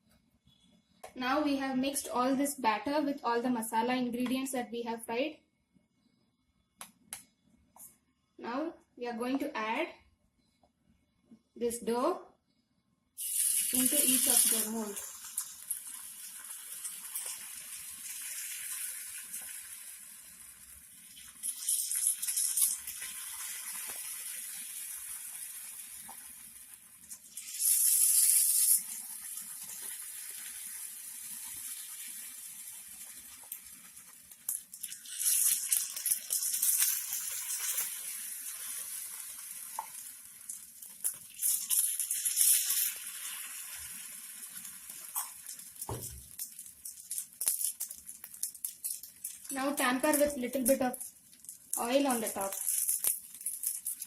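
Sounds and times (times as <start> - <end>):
batter sizzling in hot oil: 13.2 - 54.0.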